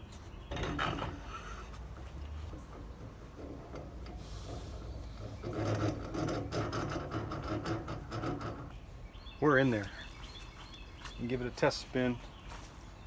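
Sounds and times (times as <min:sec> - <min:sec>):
metal parts scraping on a shaft: 0:00.5 - 0:08.8.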